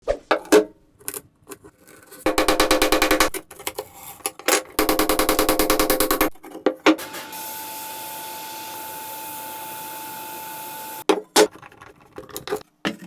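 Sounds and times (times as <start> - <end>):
sharp knocks: 2.3 - 3.4.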